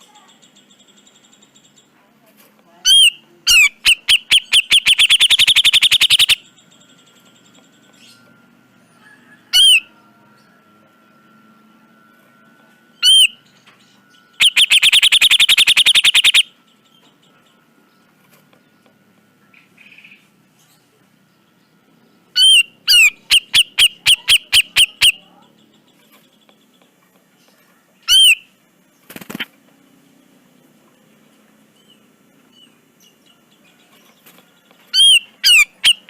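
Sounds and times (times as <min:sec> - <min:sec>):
faint steady high tone: 0:00.0 - 0:28.8
bird sharp calls: 0:02.9 - 0:06.5, 0:13.0 - 0:13.4, 0:14.4 - 0:16.5, 0:22.4 - 0:25.4, 0:28.0 - 0:28.5, 0:34.9 - 0:36.0
bird rattling call: 0:03.5 - 0:06.4, 0:14.4 - 0:16.5.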